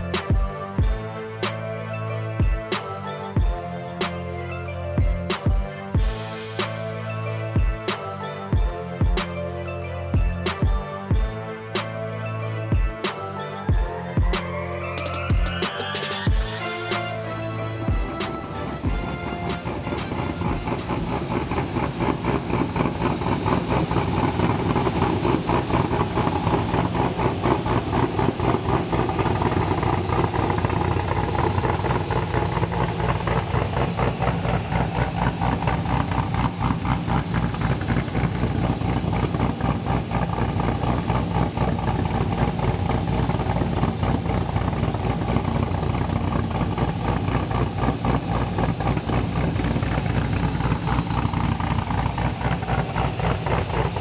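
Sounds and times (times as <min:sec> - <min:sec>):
car engine idling: 0:15.0 - 0:54.0.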